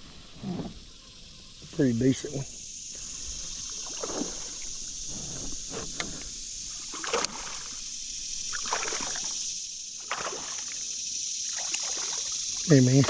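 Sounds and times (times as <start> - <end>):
water splashing and sloshing: 2.9 - 13.0.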